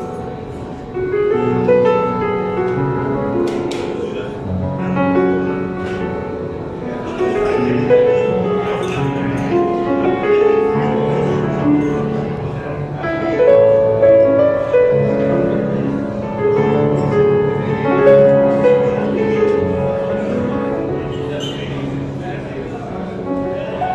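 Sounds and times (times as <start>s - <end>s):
slow piano music: 0.0s - 23.9s.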